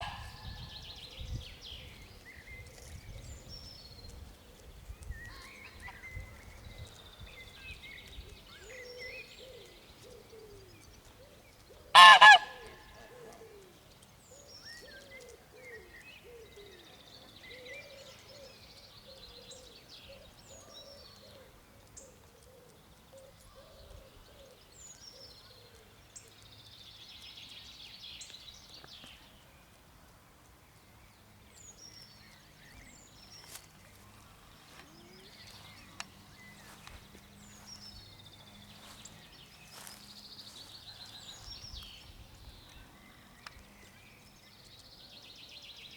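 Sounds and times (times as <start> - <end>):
small birds chirping: 0.0 - 45.9
soft low bird calls: 0.0 - 45.9
goose double honk: 12.0 - 12.7.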